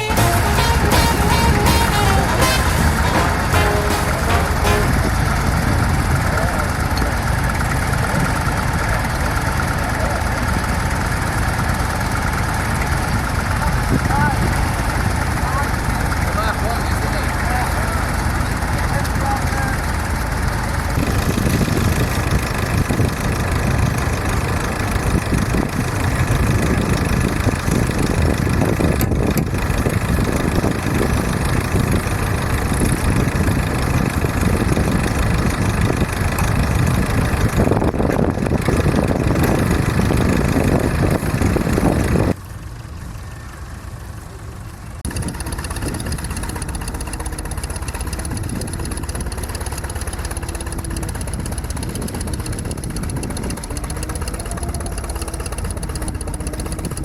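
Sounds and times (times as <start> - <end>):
steam engine running: 0.0 - 42.4, 45.0 - 57.0.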